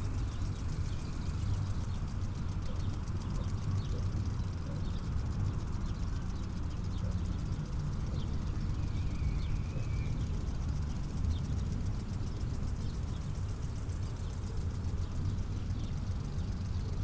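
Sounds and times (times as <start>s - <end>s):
faint bird chirps: 6.9s - 10.6s.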